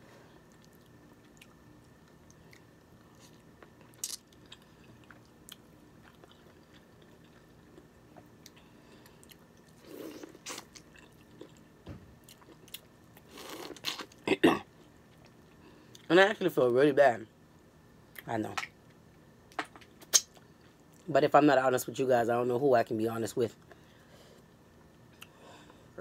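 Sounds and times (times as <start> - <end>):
person chewing crab meat: 0.4 - 14.2.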